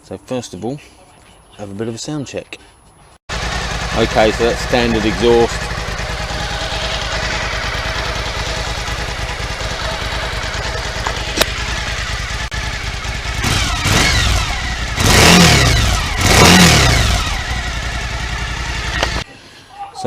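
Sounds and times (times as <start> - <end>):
motorcycle engine idling and revving: 3.3 - 19.3.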